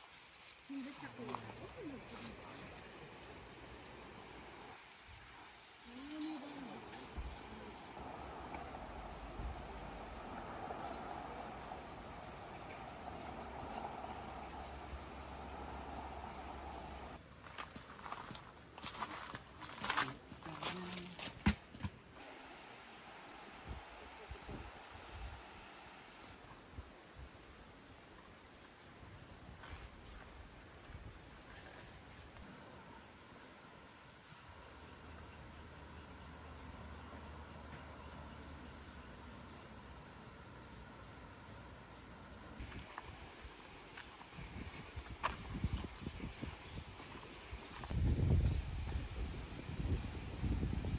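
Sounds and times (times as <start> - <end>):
faint insect chirping: 0.0 - 50.9
insects chirring chorus: 0.0 - 50.9.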